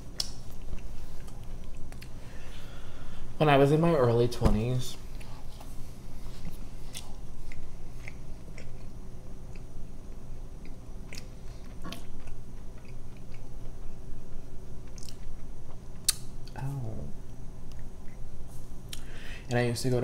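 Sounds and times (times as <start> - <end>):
person chewing food: 0.1 - 2.6, 5.1 - 16.6
wet mouth clicks: 16.0 - 16.6.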